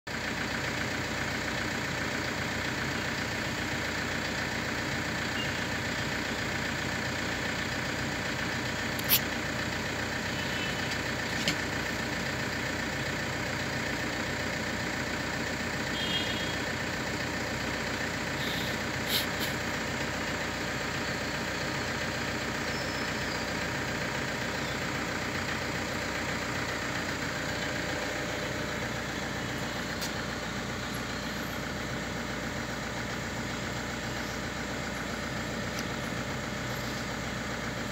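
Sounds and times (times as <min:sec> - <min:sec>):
car engine idling: 0:00.1 - 0:37.9
short sharp clicks: 0:09.0 - 0:09.2.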